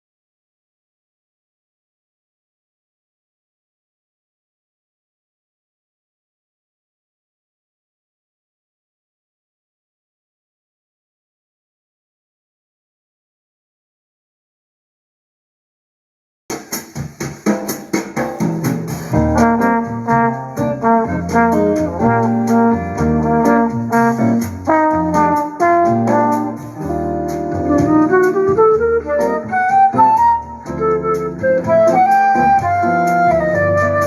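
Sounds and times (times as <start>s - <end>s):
instrumental music with bass line: 16.5s - 34.0s.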